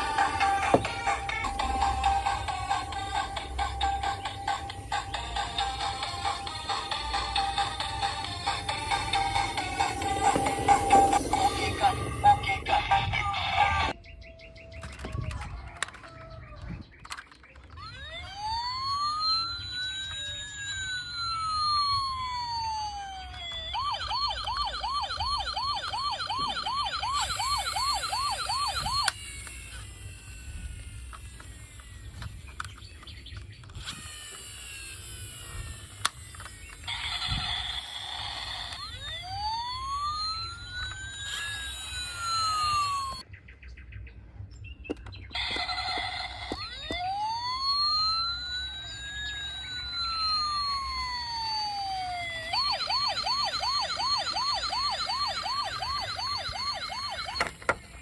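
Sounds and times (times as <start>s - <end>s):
toy electronic siren wailing: 0.0s - 14.0s, 14.8s - 43.3s, 45.0s - 58.0s.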